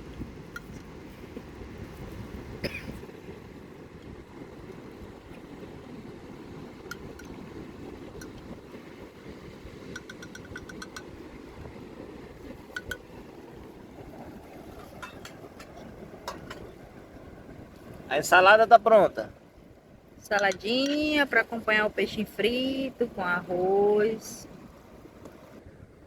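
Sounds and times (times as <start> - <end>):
surf: 0.0 - 25.6
wind: 0.0 - 26.0
rapid utensil taps: 9.9 - 11.2, 12.7 - 13.1, 20.3 - 21.1
kitchen utensils clinking: 14.8 - 16.7.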